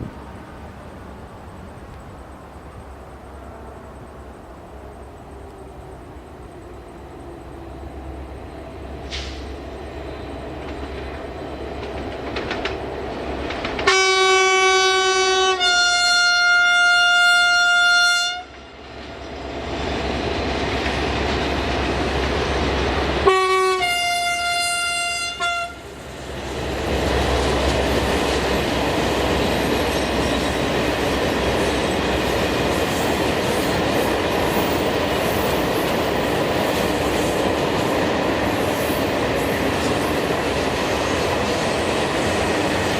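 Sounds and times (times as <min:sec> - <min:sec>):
train rumble and wheel noise: 0:00.0 - 0:42.9
train two-note horn: 0:13.8 - 0:18.6, 0:23.2 - 0:25.9.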